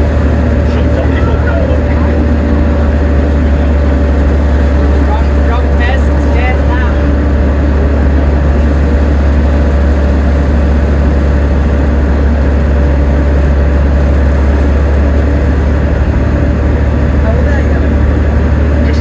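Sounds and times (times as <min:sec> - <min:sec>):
bus diesel engine humming: 0:00.0 - 0:19.0.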